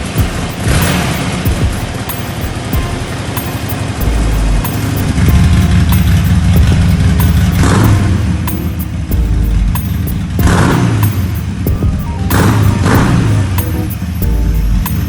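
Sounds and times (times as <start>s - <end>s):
motorcycle engine running: 3.8s - 15.0s.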